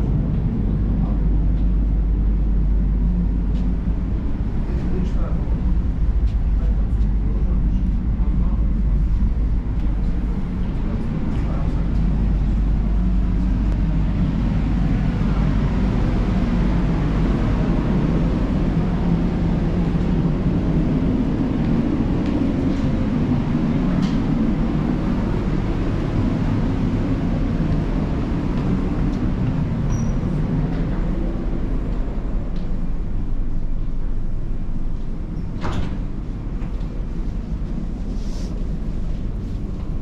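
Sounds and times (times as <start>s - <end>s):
diesel engine running: 0.0s - 35.4s.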